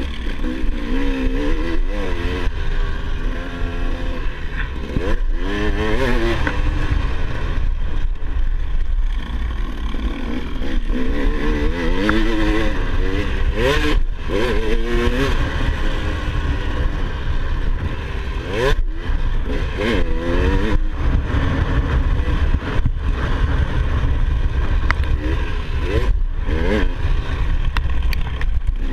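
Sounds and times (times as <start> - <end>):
motocross bike engine revving: 0.0 - 28.9.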